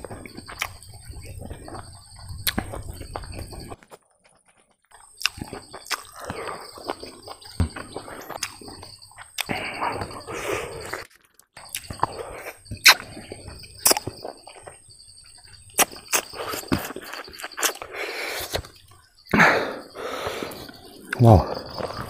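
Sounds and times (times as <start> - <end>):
chewing food: 0.0 - 22.0
wet lip-smacks and mouth clicks: 0.2 - 3.8, 4.9 - 9.6, 10.8 - 13.2, 13.8 - 14.7, 15.8 - 18.9.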